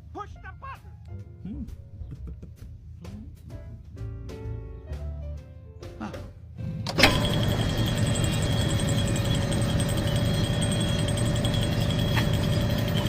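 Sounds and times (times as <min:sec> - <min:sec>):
cartoon car engine running: 0:06.8 - 0:13.0.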